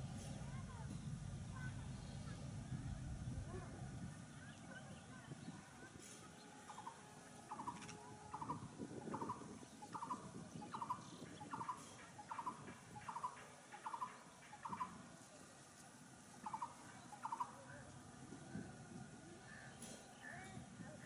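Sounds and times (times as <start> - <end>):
bird calling: 6.6 - 15.1, 16.3 - 17.8.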